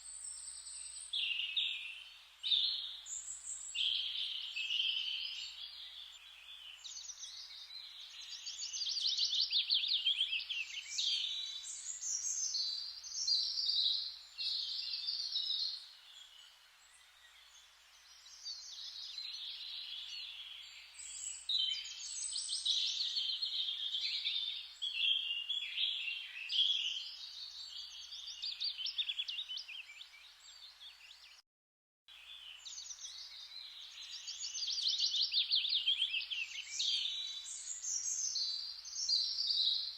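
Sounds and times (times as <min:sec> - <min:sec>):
faint hiss: 0:00.0 - 0:24.6
songbirds chirping and trilling: 0:00.0 - 0:31.4, 0:32.1 - 0:39.9.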